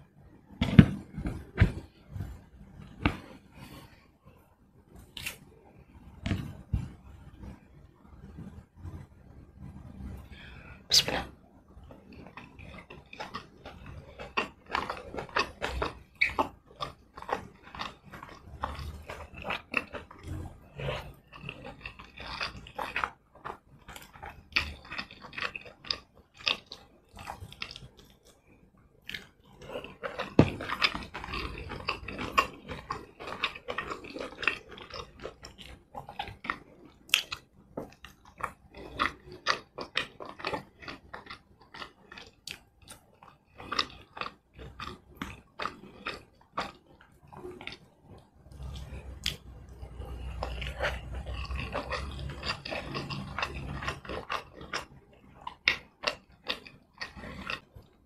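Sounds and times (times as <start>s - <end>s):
wet chewing and mouth clicks: 11.9s - 28.4s, 29.0s - 58.0s.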